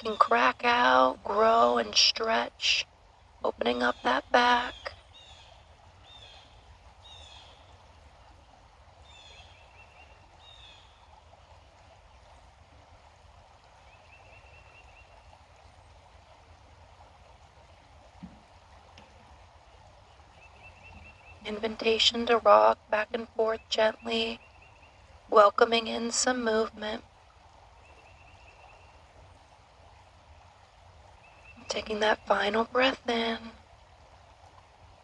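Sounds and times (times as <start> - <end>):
birds calling: 0.0 - 2.8, 3.5 - 7.7, 18.1 - 26.9.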